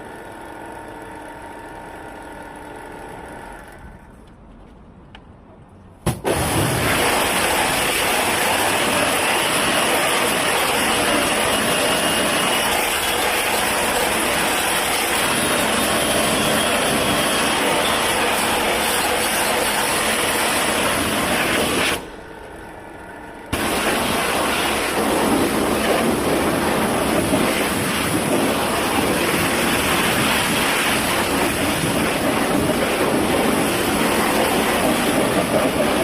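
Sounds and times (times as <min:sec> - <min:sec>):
high-pressure jet hissing: 0:06.3 - 0:22.1, 0:23.5 - 0:36.0.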